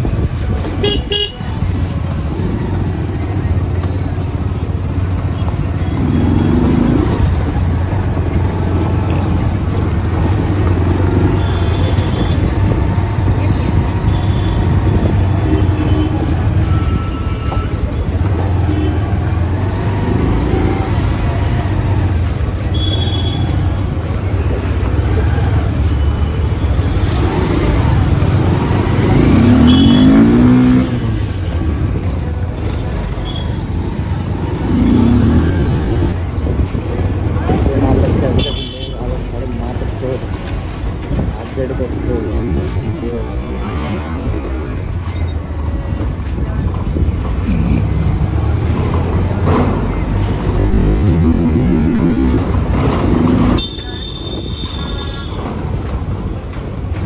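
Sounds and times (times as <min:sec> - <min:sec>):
motorcycle engine drone: 0:26.8 - 0:36.3, 0:41.2 - 0:45.8, 0:47.2 - 0:53.8.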